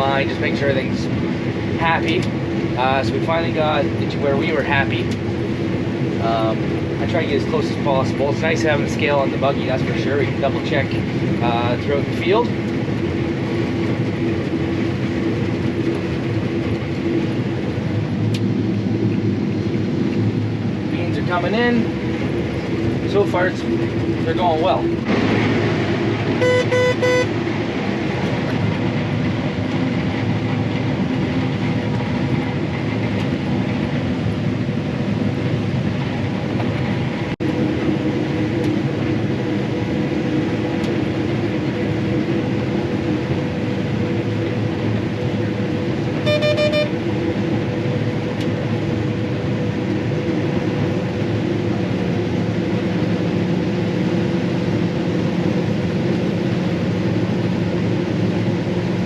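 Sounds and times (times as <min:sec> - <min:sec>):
combine harvester engine drone: 0:00.0 - 0:59.0
short electronic beep: 0:26.4 - 0:27.3, 0:46.2 - 0:47.0.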